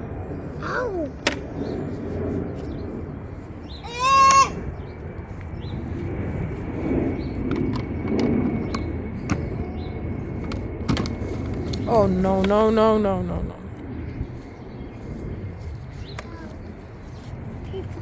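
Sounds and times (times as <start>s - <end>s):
child's high-pitched cry: 0.6s - 1.2s, 3.8s - 4.7s.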